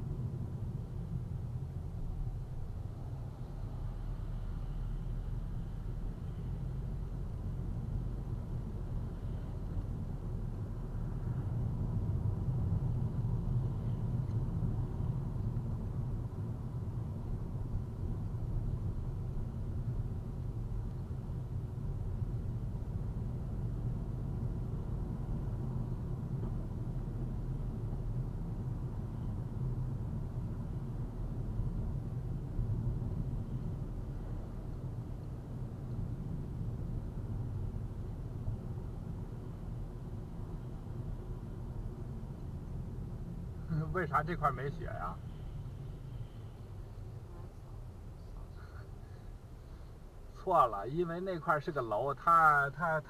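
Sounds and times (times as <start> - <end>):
car road and engine rumble: 0.0 - 53.0.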